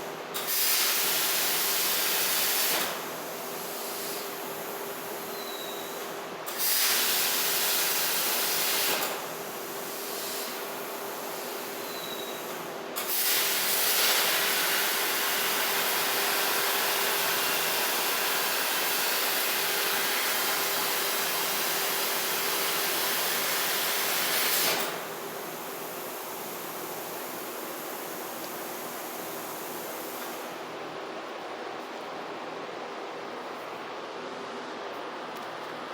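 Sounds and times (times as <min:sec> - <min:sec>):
plasma cutter torch hissing: 0:00.4 - 0:05.1, 0:06.5 - 0:11.8, 0:12.4 - 0:30.5.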